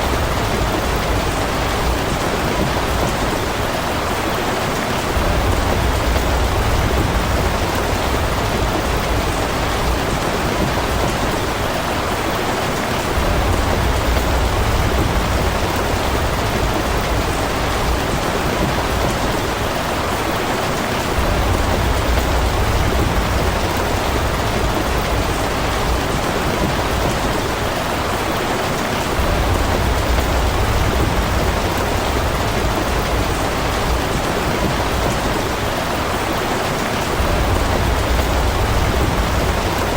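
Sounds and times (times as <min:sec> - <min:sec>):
heavy rain falling: 0:00.0 - 0:39.9
low rumble: 0:05.2 - 0:11.1, 0:37.2 - 0:39.9.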